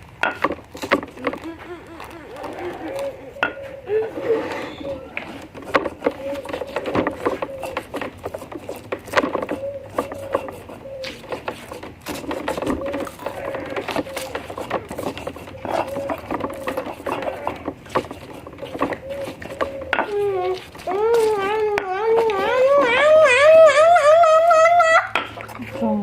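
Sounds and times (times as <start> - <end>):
kitchen clicks and knocks: 0.2 - 1.5
dove cooing: 1.0 - 26.0
faint voices: 1.1 - 8.7.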